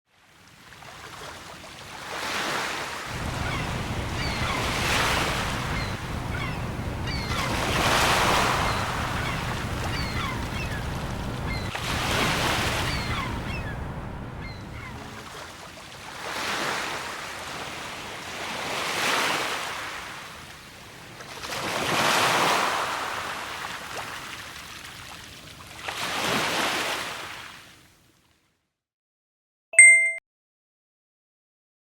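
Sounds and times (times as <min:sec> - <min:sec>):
sea waves breaking: 0:00.5 - 0:27.6
low wind rumble: 0:03.1 - 0:15.2
seagull cries: 0:03.2 - 0:15.4.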